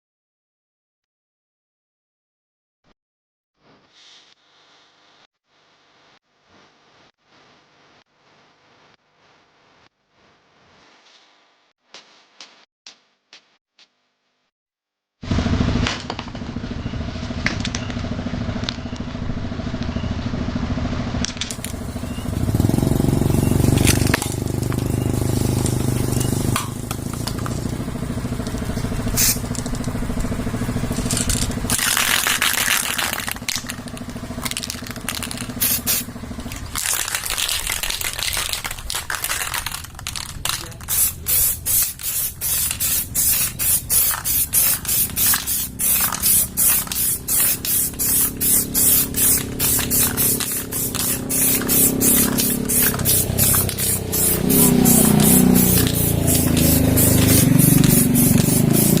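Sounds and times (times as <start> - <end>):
spray paint can hissing: 21.5 - 59.0.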